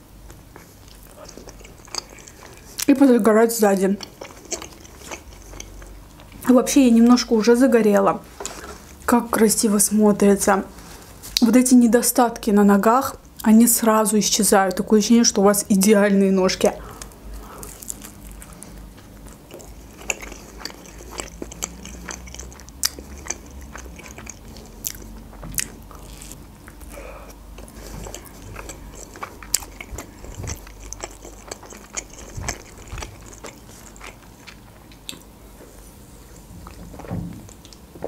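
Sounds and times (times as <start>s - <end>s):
biting and chewing crisp food: 0.5s - 6.5s, 16.9s - 35.3s.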